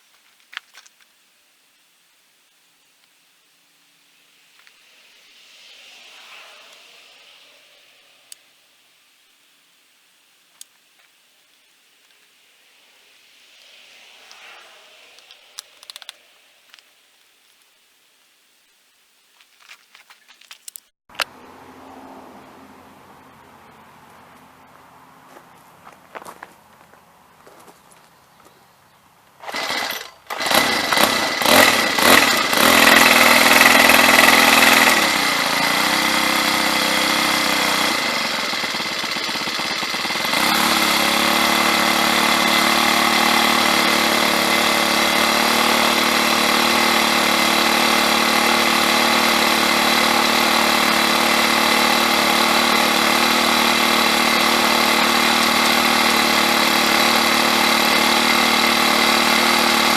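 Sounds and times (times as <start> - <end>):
string trimmer engine running: 15.1 - 16.8, 29.4 - 59.9.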